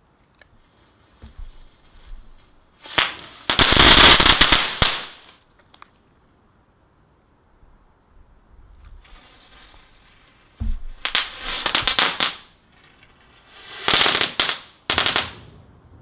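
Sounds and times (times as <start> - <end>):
firework crackling: 1.3 - 5.4, 8.9 - 16.0
firework fuse hiss: 2.8 - 5.4, 9.0 - 12.6, 13.4 - 15.4.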